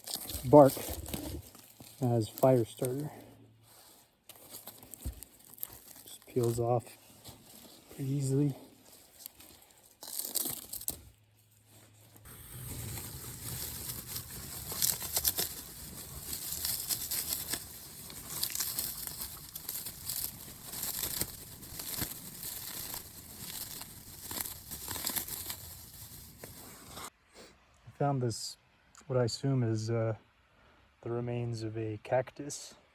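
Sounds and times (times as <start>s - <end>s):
bark tearing and crackling: 0.0s - 3.1s, 4.3s - 11.2s, 12.1s - 27.0s.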